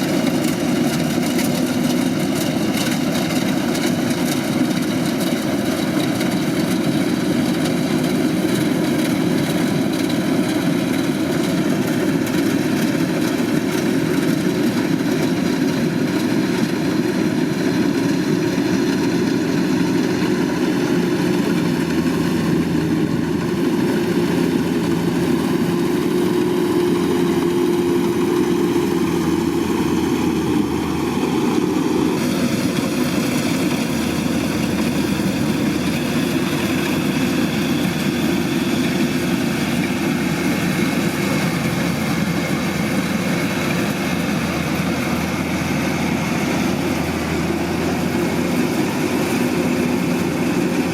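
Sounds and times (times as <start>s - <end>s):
combine harvester diesel engine: 0.0s - 50.9s.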